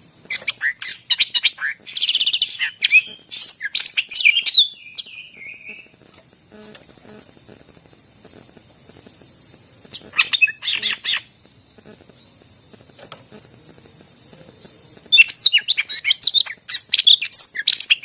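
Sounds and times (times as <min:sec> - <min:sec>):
bird chirping and whistling: 0:00.3 - 0:05.8, 0:10.2 - 0:11.3, 0:15.2 - 0:18.0.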